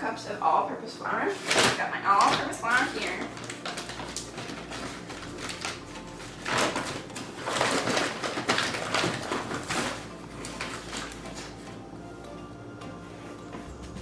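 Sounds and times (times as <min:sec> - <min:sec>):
flour rustling and scraping: 0:01.3 - 0:11.9.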